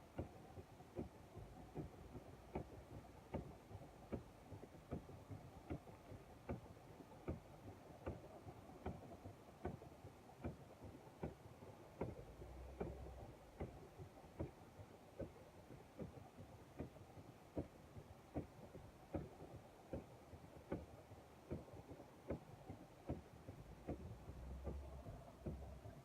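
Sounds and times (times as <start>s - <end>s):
turn signal ticking: 0.0s - 26.0s.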